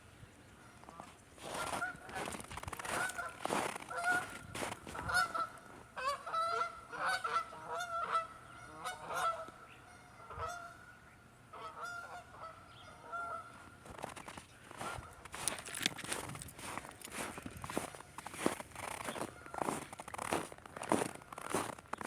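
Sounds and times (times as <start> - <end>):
geese honking: 0.6 - 22.0
footsteps crunching in snow: 0.8 - 6.6, 13.5 - 22.0.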